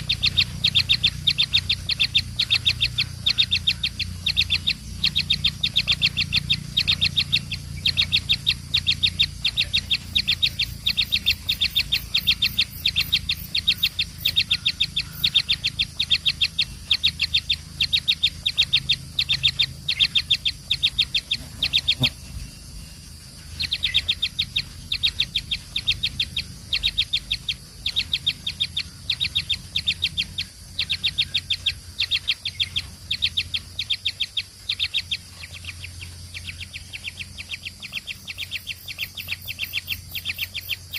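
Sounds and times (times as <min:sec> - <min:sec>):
baby birds cheeping: 0:00.0 - 0:40.9
steady low hum: 0:00.0 - 0:40.9.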